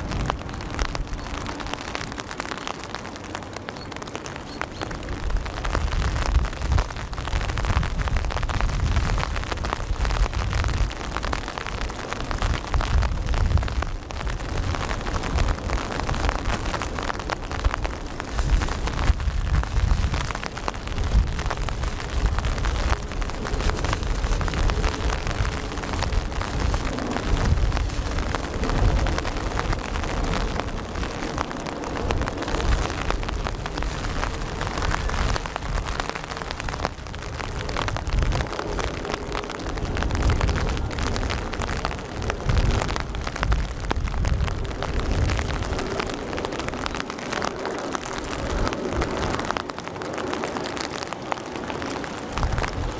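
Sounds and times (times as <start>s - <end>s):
rain pattering: 0.0s - 52.9s.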